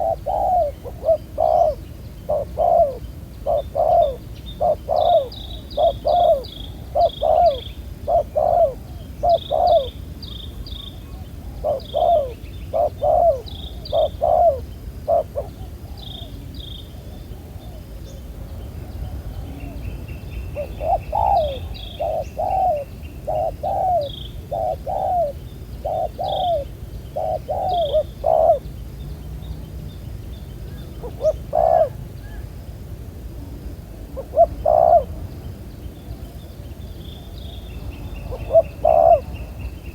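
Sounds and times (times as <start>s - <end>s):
doves cooing: 0.0s - 10.0s, 11.0s - 17.8s, 20.6s - 28.7s, 30.8s - 32.4s, 34.1s - 35.2s, 38.2s - 39.6s.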